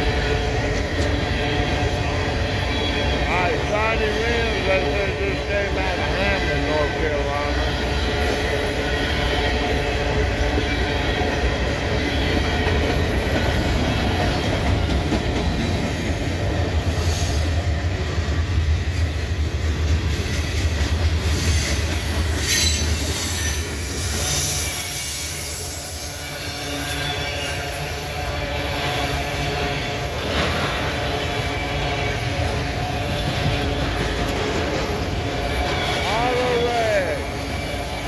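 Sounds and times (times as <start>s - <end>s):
train wheels rumbling on rail: 0.0s - 38.0s
high-pitched wheel squeal: 22.4s - 29.9s.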